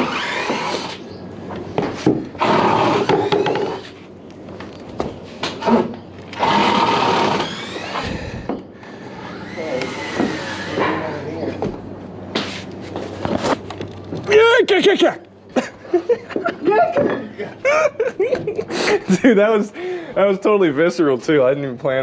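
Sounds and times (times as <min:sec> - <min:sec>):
wood and nails creaking and squealing: 0:00.0 - 0:11.6.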